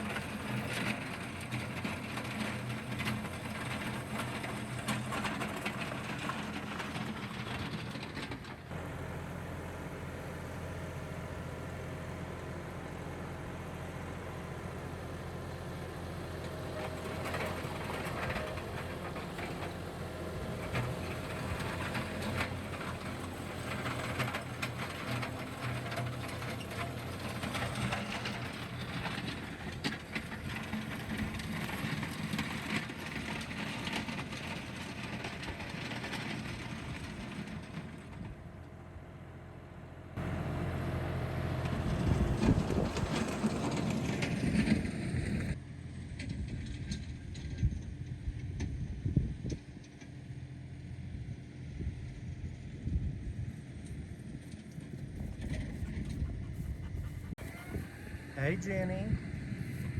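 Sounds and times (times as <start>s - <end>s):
tractor engine running: 0.0s - 59.9s
blade scraping gravel: 16.3s - 38.0s.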